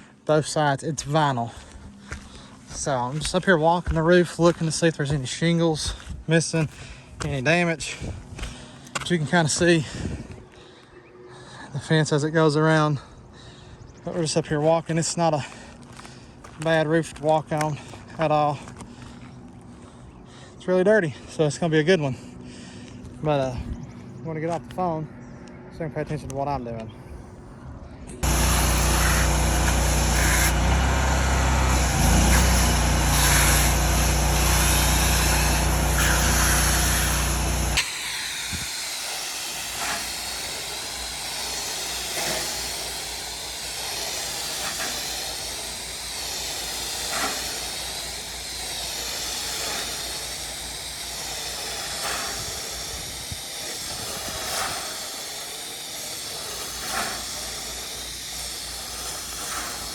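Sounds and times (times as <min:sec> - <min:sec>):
motor hum: 0:28.2 - 0:59.9
pressure washer spray hissing: 0:28.2 - 0:59.9.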